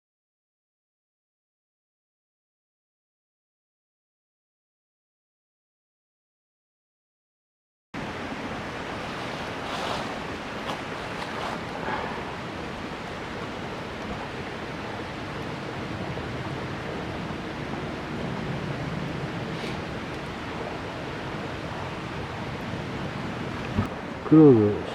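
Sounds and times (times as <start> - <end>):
steady rushing noise: 8.0 - 24.9
faint rustles: 9.0 - 12.7.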